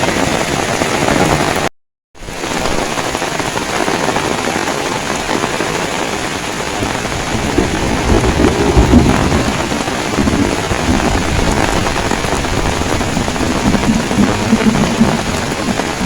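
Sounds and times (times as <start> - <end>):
heavy rain pouring: 0.0 - 16.0
wind buffeting microphone: 6.6 - 16.0.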